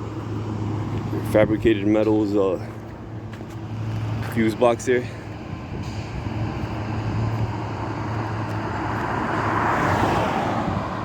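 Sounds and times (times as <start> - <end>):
vehicle passing: 0.0 - 11.0.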